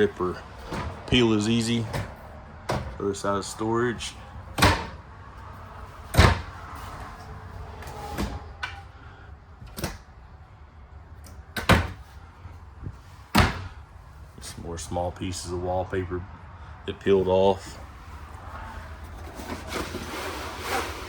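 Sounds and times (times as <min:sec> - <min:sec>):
cabinet doors knocking and banging: 0:01.8 - 0:03.0, 0:04.6 - 0:05.0, 0:06.1 - 0:06.6, 0:11.6 - 0:12.0, 0:13.3 - 0:13.7.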